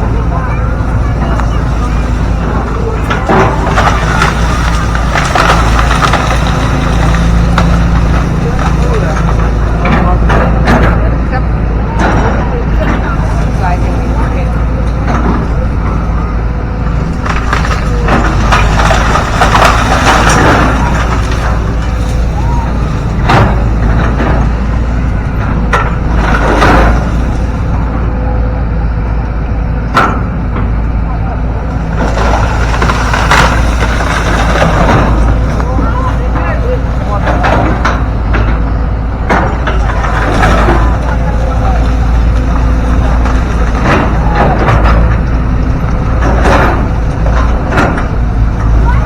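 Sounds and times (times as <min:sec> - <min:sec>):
diesel machinery rumbling: 0:00.0 - 0:49.0
rough crunching noise: 0:00.0 - 0:49.0
sharp crack: 0:01.0 - 0:11.0, 0:16.9 - 0:27.8, 0:31.7 - 0:48.8.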